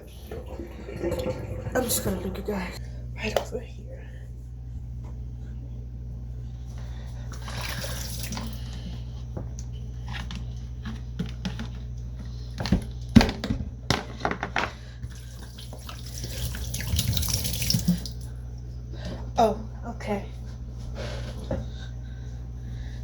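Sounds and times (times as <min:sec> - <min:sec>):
steady low hum: 0:00.0 - 0:13.0, 0:17.7 - 0:23.0
tap running into sink: 0:15.7 - 0:18.2.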